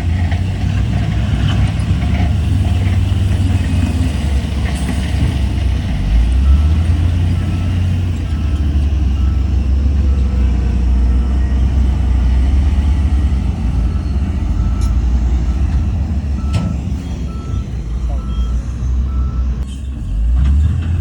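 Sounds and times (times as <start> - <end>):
heavy diesel machinery rumbling: 0.0 - 21.0
reversing alarm beeping: 6.4 - 19.6.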